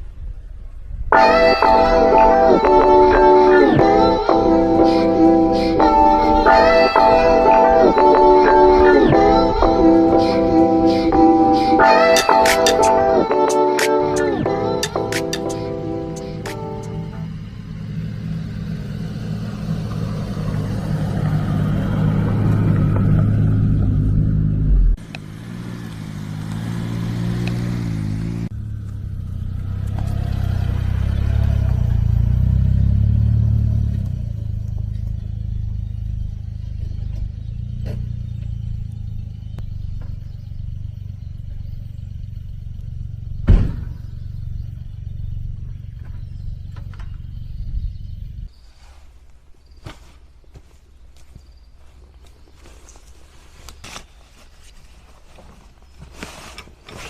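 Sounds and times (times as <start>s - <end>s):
vehicle engine revving: 1.4s - 48.6s
sharp knock: 43.5s - 44.0s.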